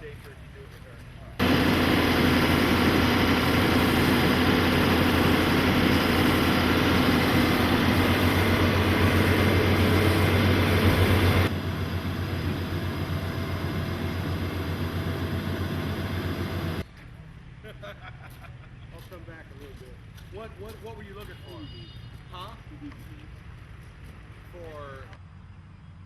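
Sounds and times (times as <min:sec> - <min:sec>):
motor humming: 0:01.4 - 0:16.8.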